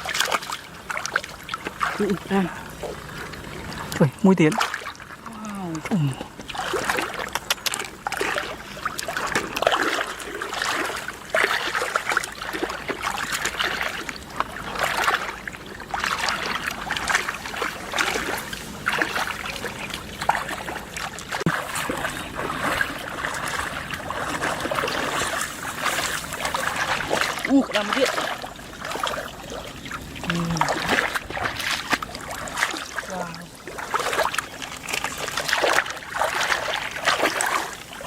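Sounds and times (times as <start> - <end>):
water splashing and sloshing: 0.0 - 38.0.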